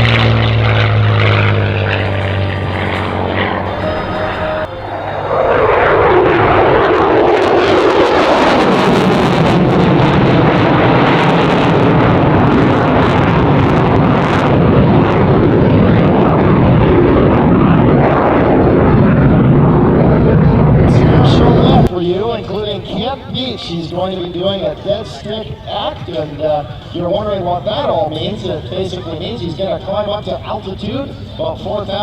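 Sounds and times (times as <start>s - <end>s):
aircraft engines flying past: 0.0s - 32.0s.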